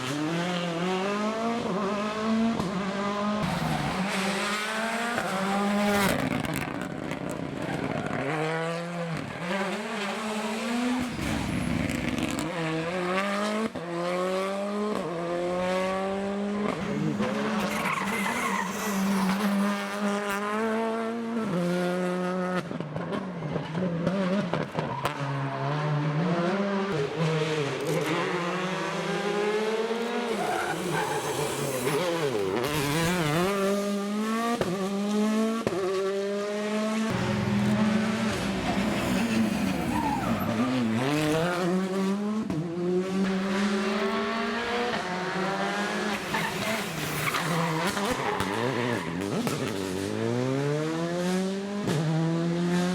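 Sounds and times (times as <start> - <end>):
rally car engines revving: 0.0 - 52.9
tyre squeal: 17.6 - 19.8, 30.1 - 33.2, 38.6 - 41.8, 45.8 - 49.5.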